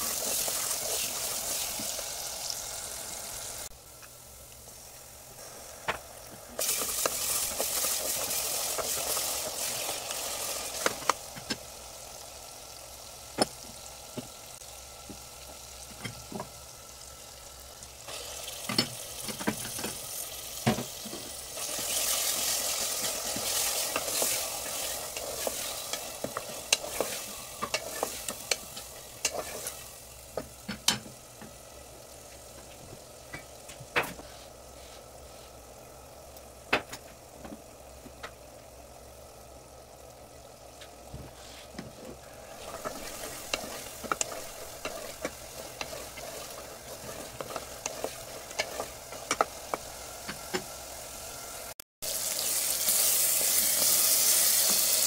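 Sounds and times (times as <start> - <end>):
meat sizzling in a pot: 0.0 - 55.0
wooden spatula scraping a pot: 21.6 - 28.6, 29.2 - 29.8, 41.3 - 49.9.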